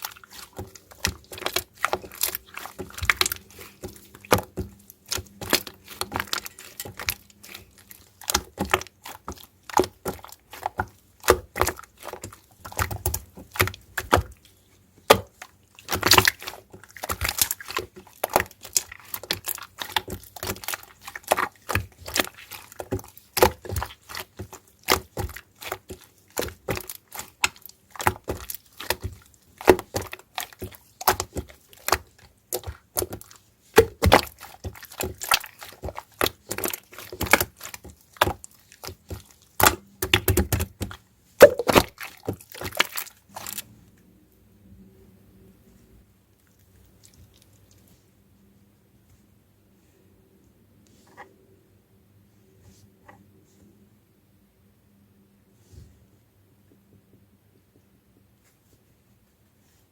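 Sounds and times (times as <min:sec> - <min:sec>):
slime squeezed by hand: 0:41.4 - 0:43.6.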